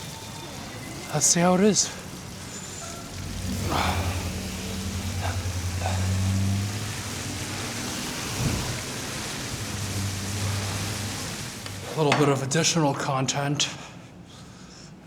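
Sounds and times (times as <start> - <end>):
wet hiss of slushy street: 0.0 - 12.1
low engine hum: 2.0 - 11.8.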